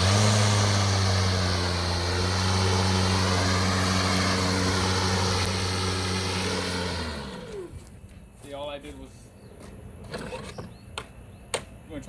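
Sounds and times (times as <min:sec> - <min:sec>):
electric lawn mower humming: 0:00.0 - 0:08.0.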